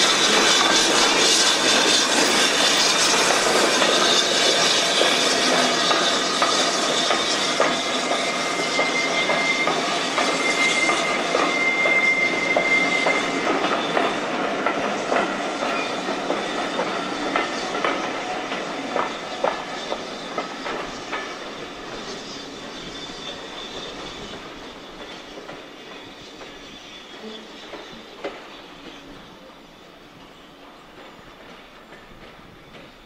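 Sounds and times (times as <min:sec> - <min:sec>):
passenger train rolling past: 0:00.0 - 0:33.0
thin wheel squeal: 0:00.1 - 0:14.2, 0:19.1 - 0:29.3.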